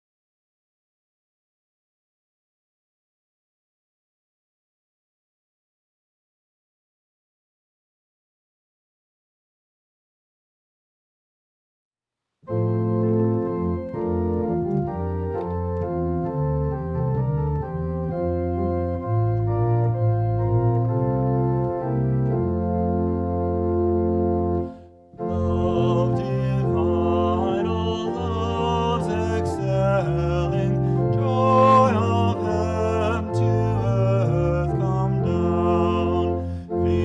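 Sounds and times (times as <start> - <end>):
organ playing sustained chords: 12.5 - 37.0.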